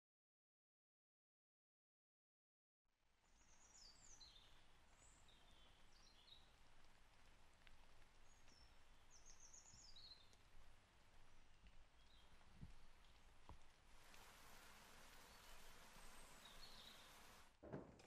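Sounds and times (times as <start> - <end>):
low background hiss: 3.0 - 17.6
bird chirping: 15.2 - 17.4.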